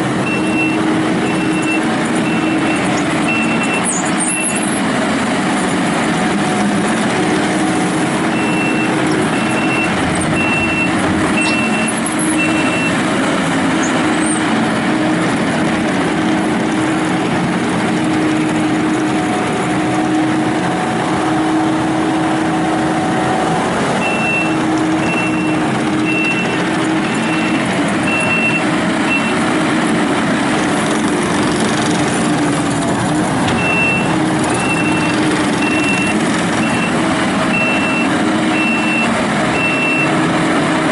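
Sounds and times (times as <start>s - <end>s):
diesel engine running: 0.0s - 40.9s
reverse alarm beeps: 0.2s - 4.7s, 8.3s - 13.0s, 24.0s - 29.4s, 33.6s - 40.2s.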